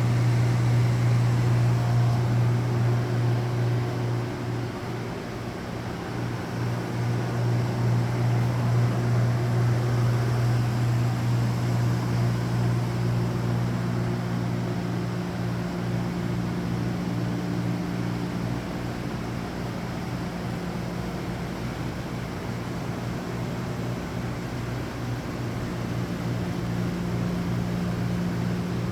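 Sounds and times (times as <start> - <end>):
machine humming: 0.0 - 5.0.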